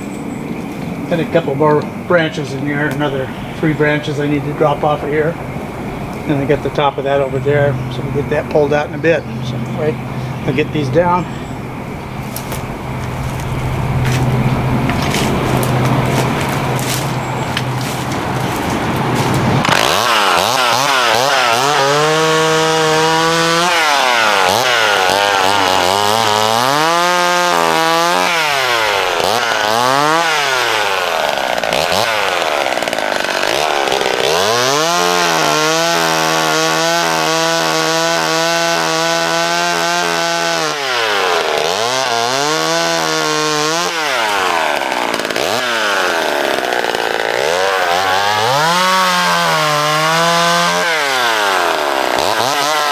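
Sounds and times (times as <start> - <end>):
chainsaw revving and cutting: 12.1 - 52.9.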